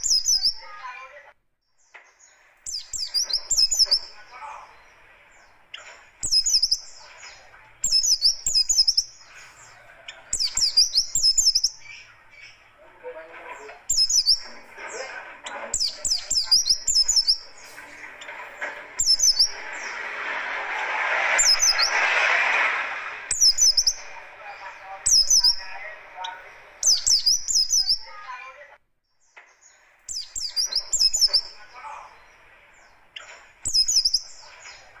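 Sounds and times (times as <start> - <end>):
bird twittering: 0.0 - 1.0, 1.6 - 12.8, 13.6 - 20.2, 21.4 - 22.1, 23.3 - 28.4, 29.1 - 35.0
rushing noise: 17.2 - 26.9.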